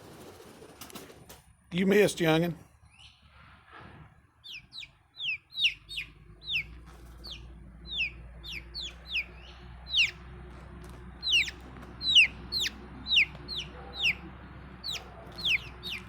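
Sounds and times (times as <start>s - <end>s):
young chickens peeping: 2.8s - 16.0s.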